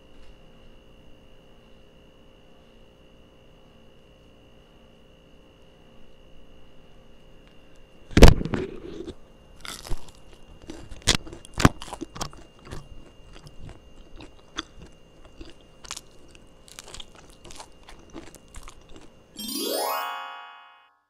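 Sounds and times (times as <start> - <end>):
crunch of biting flatbread: 8.2 - 19.3
crunchy chewing: 8.2 - 19.4.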